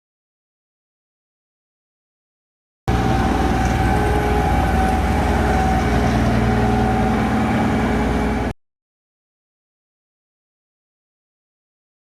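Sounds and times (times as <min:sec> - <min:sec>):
heavy engine rumbling: 0:02.9 - 0:08.6.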